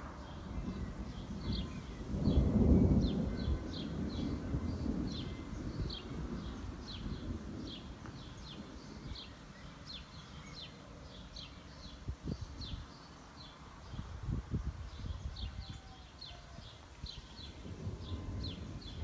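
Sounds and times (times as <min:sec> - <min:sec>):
thunder rumble: 0:00.0 - 0:09.5, 0:17.1 - 0:19.0.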